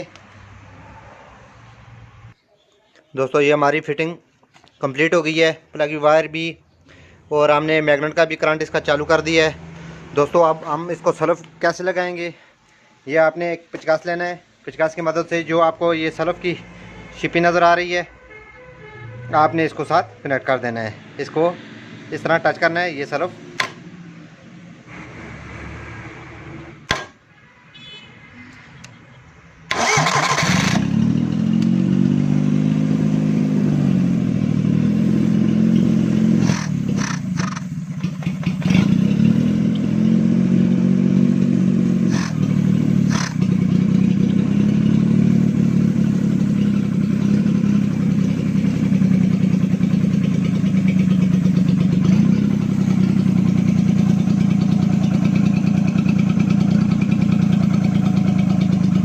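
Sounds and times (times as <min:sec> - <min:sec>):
starter motor cranking: 0:29.7 - 0:31.0, 0:36.4 - 0:38.9, 0:42.1 - 0:43.6
car engine running: 0:29.7 - 0:59.0.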